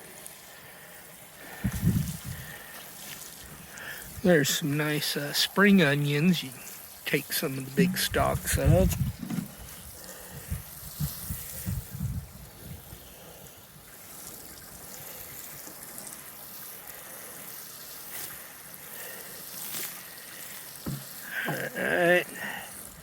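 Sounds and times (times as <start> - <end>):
water trickling from a jug: 0.2 - 23.0
soft knocks: 9.2 - 9.5, 20.8 - 21.1.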